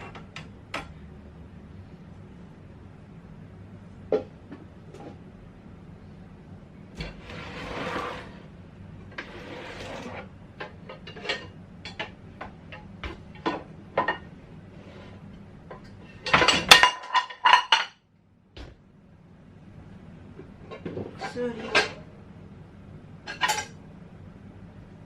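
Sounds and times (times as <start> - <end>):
dishes and cutlery clinking: 10.0 - 14.3, 15.7 - 18.0, 20.7 - 22.0, 23.3 - 23.8.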